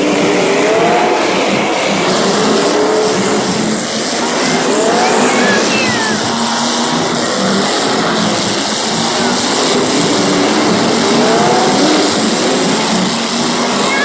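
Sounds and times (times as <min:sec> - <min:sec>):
race car engines revving: 0:00.0 - 0:14.0
tyres squealing: 0:04.4 - 0:07.0, 0:13.8 - 0:14.0.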